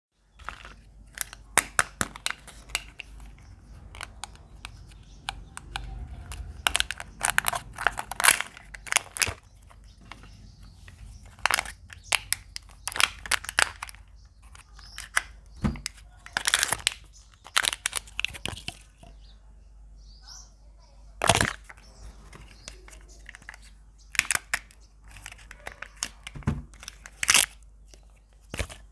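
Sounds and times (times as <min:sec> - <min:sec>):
eggs cracking open: 0:00.3 - 0:19.1, 0:21.2 - 0:28.9
wrappers crinkling and tearing: 0:05.5 - 0:10.3, 0:11.1 - 0:15.2, 0:16.2 - 0:18.8.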